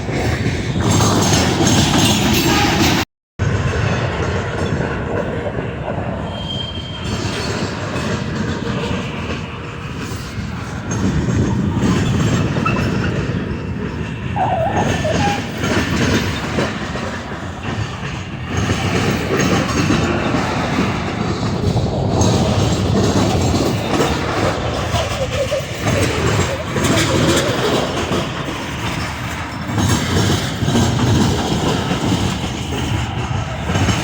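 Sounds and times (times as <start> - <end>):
train wheels clattering: 0.0 - 3.0, 3.6 - 34.0
faint wheel squeal: 6.2 - 8.2, 10.0 - 16.8.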